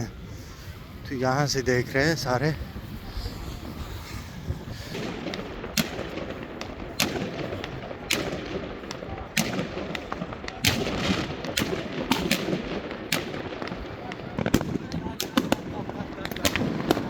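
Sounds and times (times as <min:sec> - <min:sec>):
fireworks and firecrackers banging: 0:00.0 - 0:17.0.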